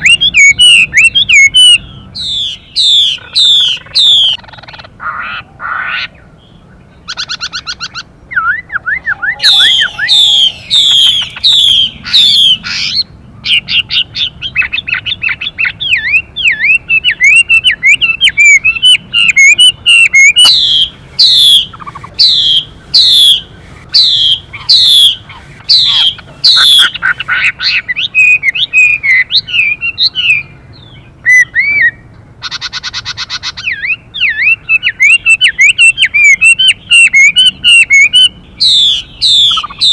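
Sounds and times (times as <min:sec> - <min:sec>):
bird singing whistled phrases: 0:00.0 - 0:04.4, 0:07.1 - 0:23.4, 0:24.0 - 0:32.0, 0:33.5 - 0:39.9
harsh buzzing bird calls: 0:00.0 - 0:39.9.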